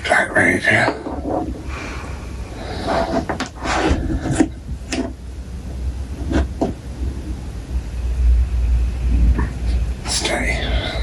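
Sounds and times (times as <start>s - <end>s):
plastic action figure rubbing: 0.9s - 1.7s, 2.6s - 5.2s, 6.1s - 6.8s.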